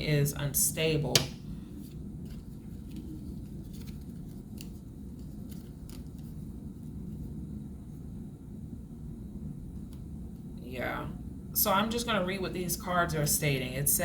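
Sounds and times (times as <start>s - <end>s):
low room hum: 0.0s - 14.0s
cards clicking and snapping: 2.3s - 6.2s.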